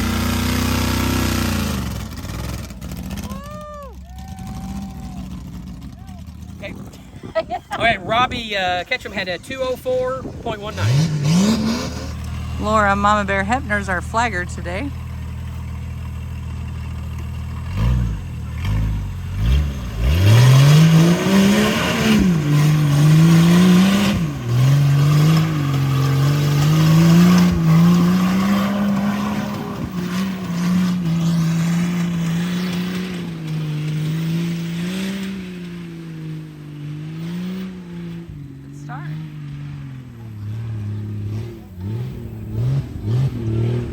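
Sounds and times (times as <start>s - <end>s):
truck engine revving: 0.0s - 43.9s.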